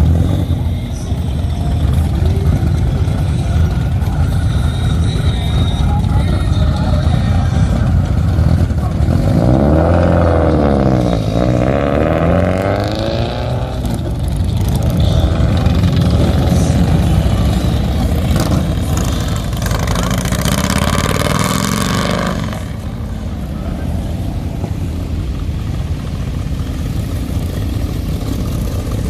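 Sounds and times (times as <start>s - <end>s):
cars driving past: 0.0s - 29.0s
car engine revving pulling away: 7.5s - 29.0s.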